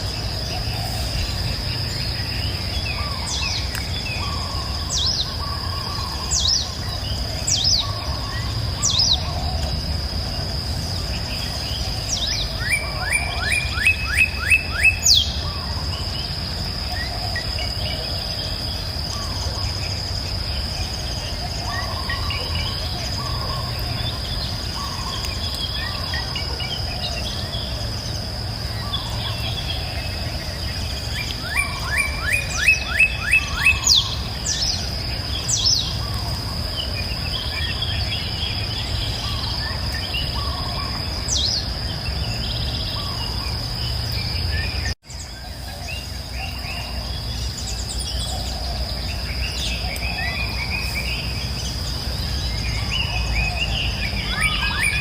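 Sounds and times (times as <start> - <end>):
flowing water rumble: 0.0 - 13.8
bird chirps: 0.0 - 55.0
insect drone: 0.0 - 55.0
bird trill: 11.2 - 16.3, 28.7 - 55.0.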